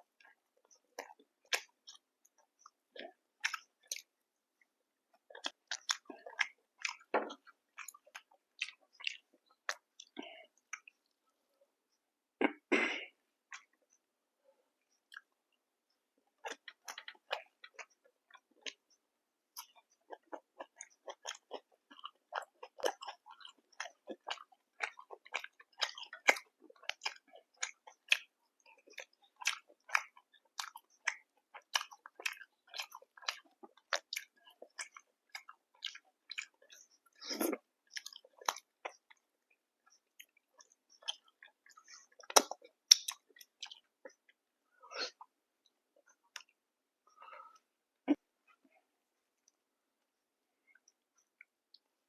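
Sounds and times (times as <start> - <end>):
chewing and biting food: 0.2 - 4.1, 5.1 - 11.0, 16.3 - 44.4
wet mouth clicks: 40.6 - 43.9.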